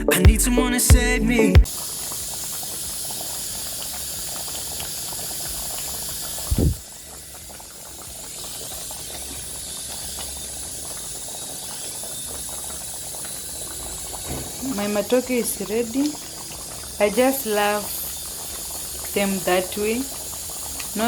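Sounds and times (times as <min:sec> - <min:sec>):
pot boiling and bubbling: 0:01.6 - 0:21.0
short low thump: 0:06.5 - 0:06.8.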